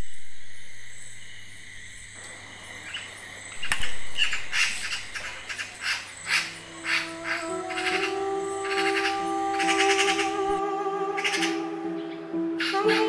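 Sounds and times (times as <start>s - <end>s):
bird chirping: 0.0s - 13.0s
sustained music notes: 6.2s - 13.0s.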